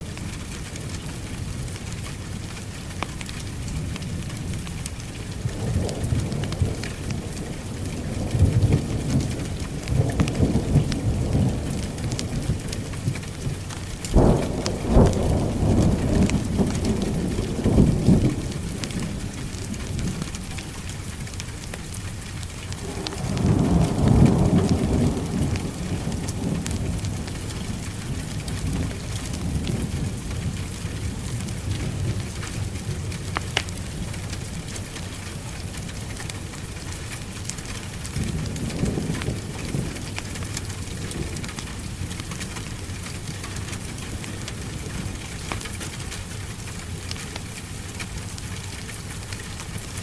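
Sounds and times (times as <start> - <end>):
steady rain: 0.0 - 50.0
thunder rumbling: 3.6 - 47.0
sharp thunderclap: 14.1 - 20.4, 22.7 - 30.6.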